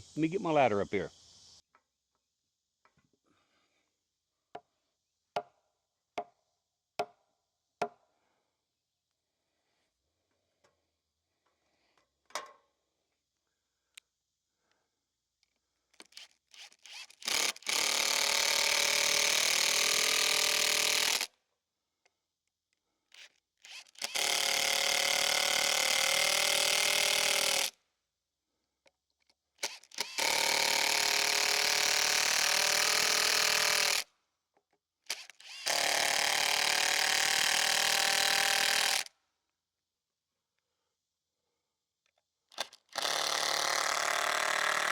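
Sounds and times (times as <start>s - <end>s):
cordless drill driving screws: 16.0s - 21.3s, 23.1s - 27.8s, 29.6s - 34.1s, 35.1s - 39.1s, 42.5s - 44.9s.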